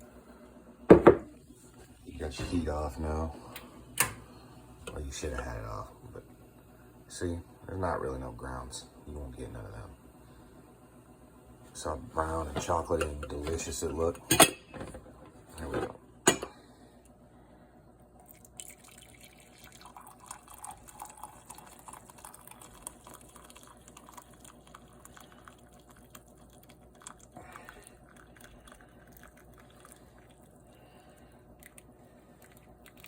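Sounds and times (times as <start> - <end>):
coffee dripping and trickling: 18.2 - 33.0.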